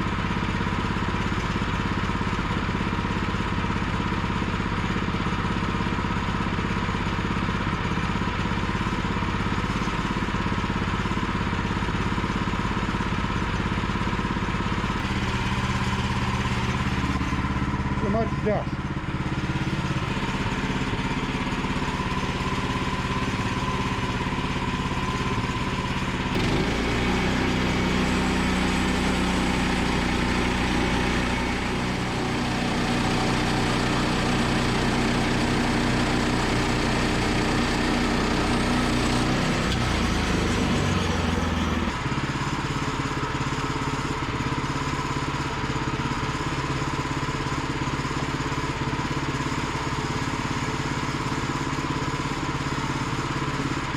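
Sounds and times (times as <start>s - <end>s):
gas engine running: 0.0s - 53.9s
band blade sawing through log: 36.5s - 42.0s.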